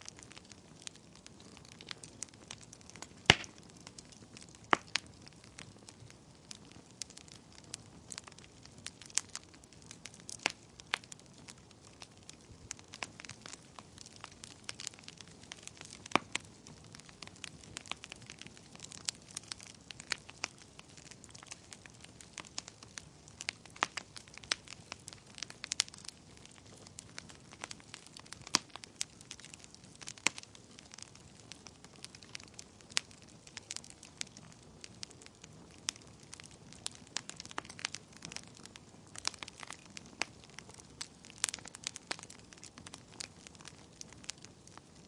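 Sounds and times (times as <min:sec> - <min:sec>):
soft hiss of flames: 0:00.0 - 0:45.0
wood fire crackling: 0:00.0 - 0:45.0
sharp pops and snaps: 0:03.0 - 0:05.0.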